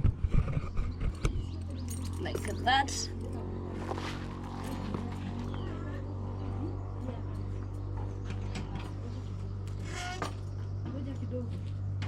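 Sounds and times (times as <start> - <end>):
steady low hum: 0.0 - 12.0
faint distant voices: 0.7 - 12.0.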